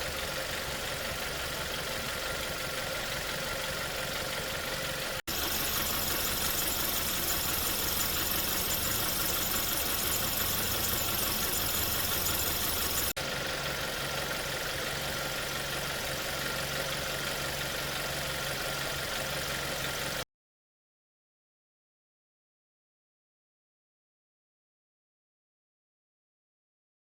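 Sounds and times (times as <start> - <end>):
car engine idling: 0.0 - 20.2.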